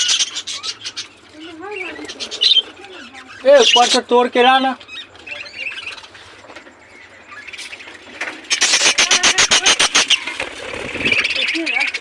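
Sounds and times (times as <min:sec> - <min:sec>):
budgerigar squealing calls: 0:00.0 - 0:06.0, 0:08.4 - 0:12.0.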